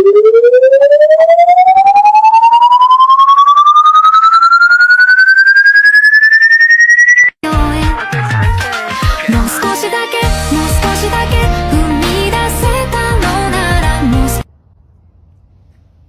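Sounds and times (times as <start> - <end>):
pulsing siren-like tone rising: 0.0 - 7.4
music: 7.4 - 14.5.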